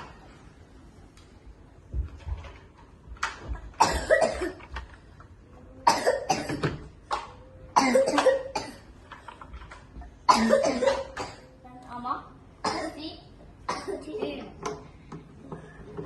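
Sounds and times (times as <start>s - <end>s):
person coughing: 3.8s - 4.7s, 5.8s - 6.8s, 7.8s - 8.9s, 10.3s - 11.5s.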